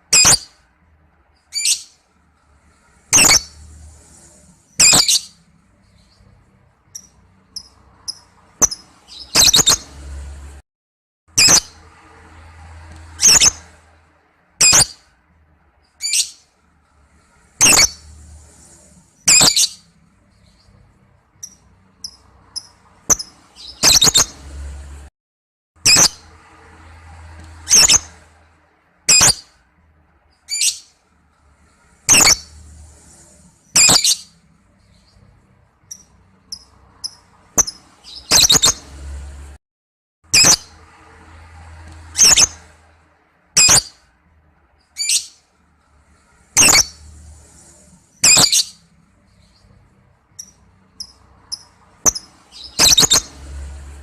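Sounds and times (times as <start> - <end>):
lovebird high-pitched calls: 0.1 - 0.6, 1.5 - 2.0, 3.1 - 5.4, 6.9 - 10.0, 11.4 - 11.8, 13.1 - 13.7, 14.6 - 15.0, 16.0 - 16.4, 17.6 - 18.3, 19.2 - 20.7, 21.4 - 24.6, 25.8 - 26.3, 27.6 - 28.2, 29.1 - 29.5, 30.4 - 30.9, 32.1 - 32.7, 33.6 - 34.4, 35.9 - 39.0, 40.4 - 40.7, 42.1 - 42.7, 43.6 - 44.0, 45.0 - 45.4, 46.6 - 47.2, 48.1 - 48.8, 50.4 - 53.5
soft bird chirps: 1.3 - 2.0, 2.6 - 10.0, 17.1 - 24.5, 31.6 - 38.9, 46.1 - 53.4
lovebird screeching: 3.1 - 3.6, 4.8 - 5.4, 13.2 - 13.6, 14.6 - 15.0, 17.6 - 18.0, 19.2 - 19.8, 27.7 - 28.1, 32.1 - 32.5, 33.7 - 34.3, 42.2 - 42.6, 43.6 - 44.0, 46.6 - 47.0, 48.2 - 48.8, 51.5 - 53.4.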